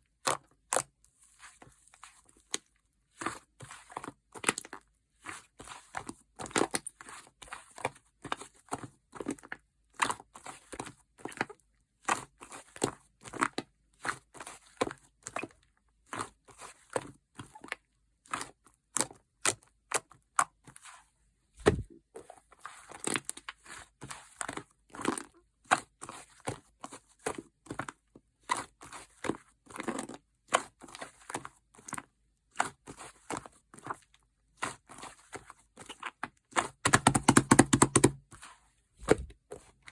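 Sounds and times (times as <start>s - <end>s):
heavy thump: 21.6s - 21.9s.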